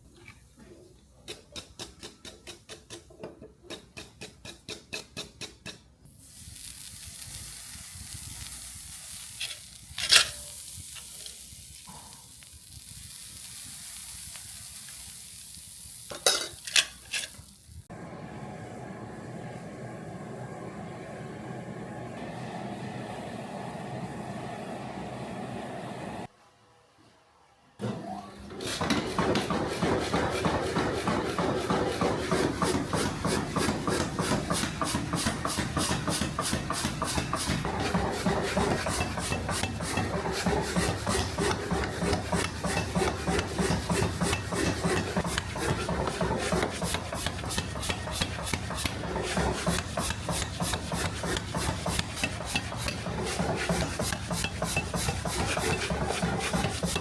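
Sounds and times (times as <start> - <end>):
rasping tool on steel blade: 36.1 - 57.0.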